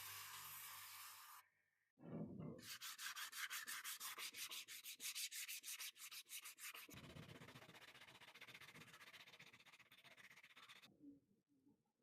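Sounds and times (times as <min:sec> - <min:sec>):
hand sanding strokes: 0:02.6 - 0:07.0.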